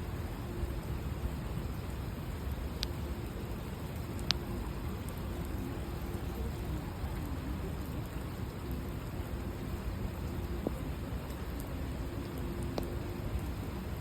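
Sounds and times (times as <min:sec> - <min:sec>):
rain pattering on surfaces: 0:00.0 - 0:14.0.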